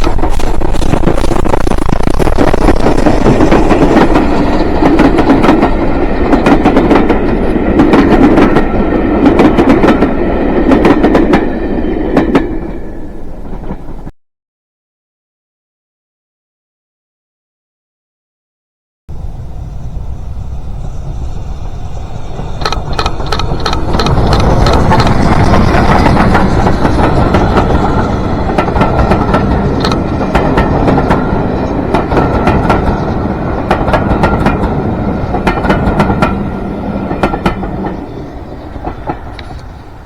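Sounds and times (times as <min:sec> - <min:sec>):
train passing: 0:00.0 - 0:14.1, 0:19.1 - 0:40.0
wheels clicking over rail joints: 0:22.3 - 0:40.0.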